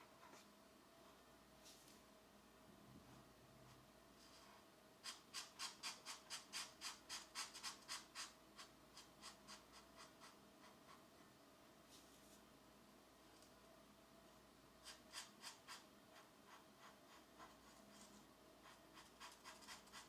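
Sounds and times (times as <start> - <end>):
pencil scratching on paper: 5.0 - 11.0, 14.8 - 20.0.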